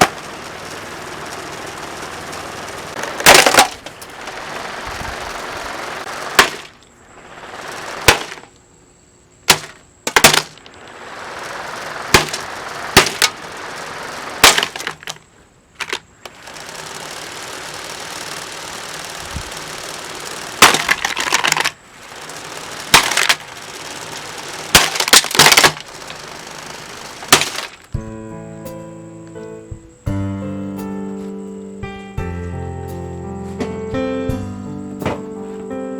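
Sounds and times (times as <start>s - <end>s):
blows smashing plastic fan: 0.0s - 8.6s, 9.4s - 30.2s
steady rushing hiss: 0.0s - 9.1s, 10.6s - 14.5s, 16.4s - 21.1s, 21.8s - 35.9s.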